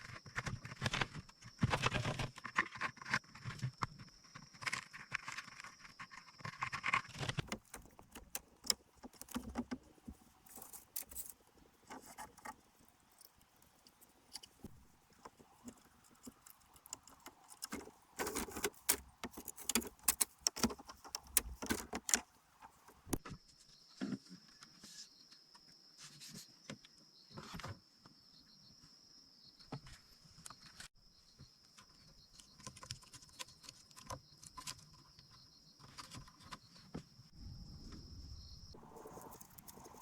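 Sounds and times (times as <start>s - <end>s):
bamboo and dry grass clattering: 0.0s - 23.2s, 38.8s - 40.0s.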